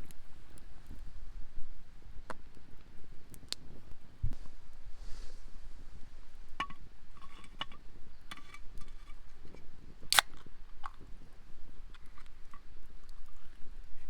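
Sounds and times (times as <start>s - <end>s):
objects clicking and clinking: 6.6s - 9.2s.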